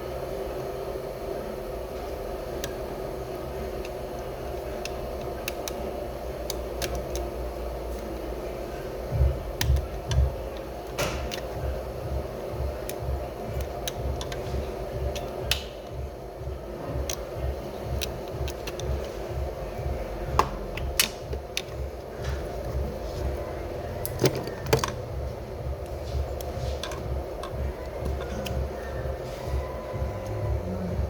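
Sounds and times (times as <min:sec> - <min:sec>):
low pulsing mechanical hum: 0:00.0 - 0:31.0
hand tools tapping on metal: 0:24.1 - 0:30.5.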